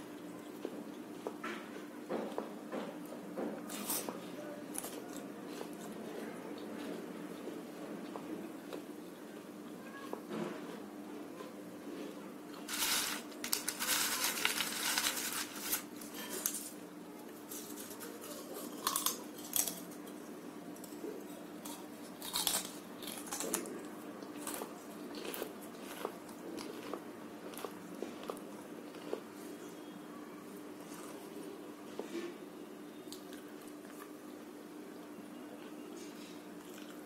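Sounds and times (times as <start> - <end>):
crunching of fried snack: 12.7 - 16.7, 17.5 - 20.0, 21.6 - 29.3.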